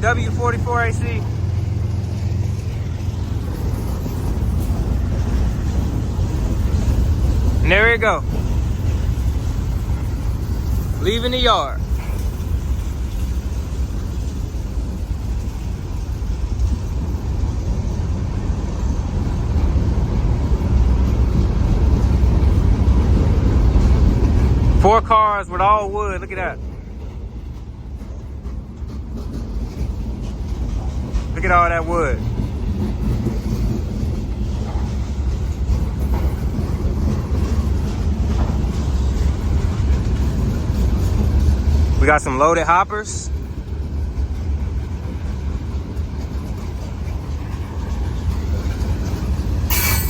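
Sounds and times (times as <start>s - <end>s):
freight train rolling past: 0.0s - 50.0s.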